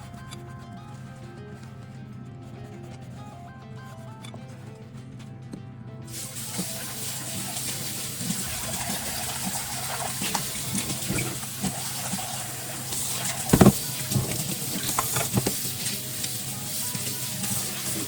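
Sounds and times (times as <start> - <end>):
tap running water into sink: 6.2 - 18.0
dishes clinking: 13.3 - 15.7
knock: 13.5 - 14.4.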